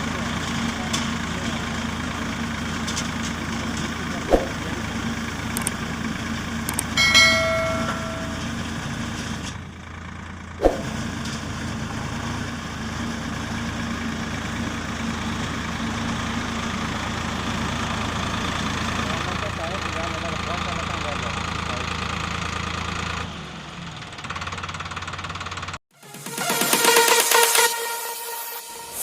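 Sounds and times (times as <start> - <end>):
diesel tractor engine idling: 0.0 - 25.8
brief pitched tone: 7.0 - 8.7.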